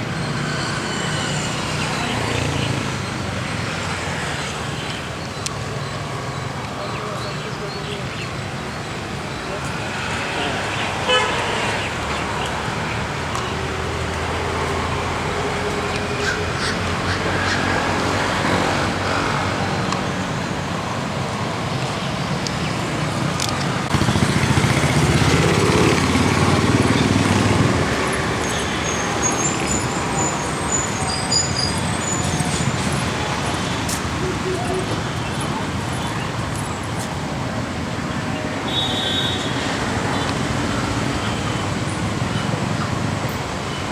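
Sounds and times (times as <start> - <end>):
road traffic: 0.0 - 43.9
birds calling: 16.1 - 18.6, 25.5 - 36.4
vehicle passing: 21.4 - 36.6.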